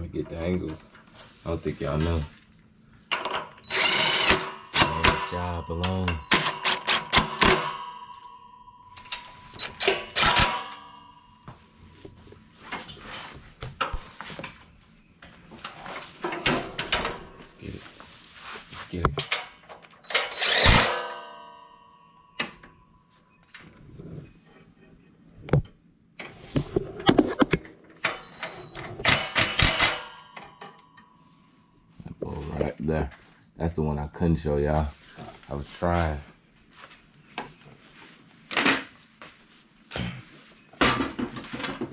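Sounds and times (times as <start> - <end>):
hand tools and metal parts clattering: 0.0 - 24.8, 27.2 - 31.2, 36.8 - 39.4, 40.4 - 41.9.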